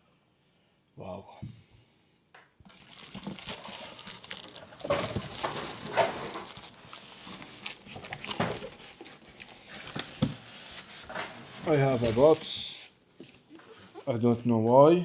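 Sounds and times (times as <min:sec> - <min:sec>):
packaging rustling and crinkling: 0:02.7 - 0:14.3.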